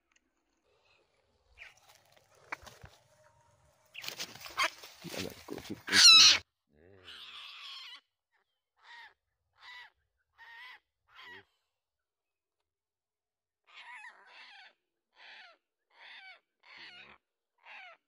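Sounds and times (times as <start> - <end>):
bird harsh distress calls: 1.6 - 6.4
bird wings flapping: 3.9 - 5.9.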